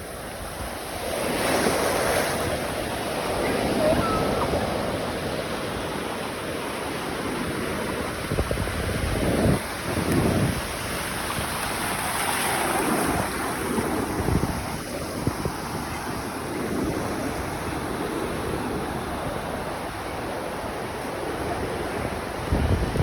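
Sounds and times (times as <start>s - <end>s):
waves washing on beach: 0.0s - 23.0s
wind buffeting microphone: 7.5s - 20.3s, 21.2s - 23.0s.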